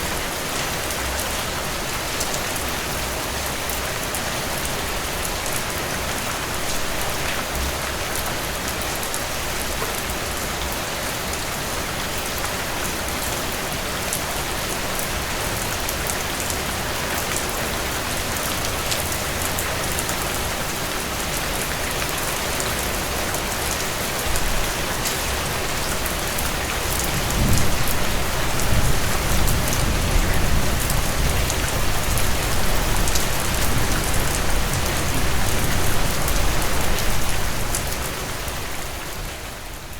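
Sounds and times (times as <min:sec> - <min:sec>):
heavy rain on a tin roof: 0:00.0 - 0:39.9
low rolling thunder: 0:27.0 - 0:36.5.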